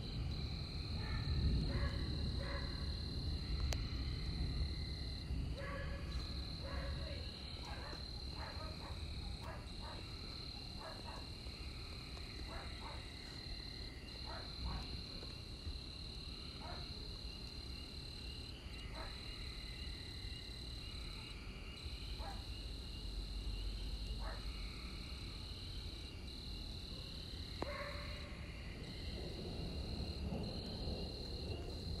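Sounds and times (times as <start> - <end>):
distant thunder rumble: 0.0 - 11.4, 28.1 - 32.0
frogs croaking: 0.0 - 26.7, 27.5 - 32.0
insects trilling: 0.0 - 32.0.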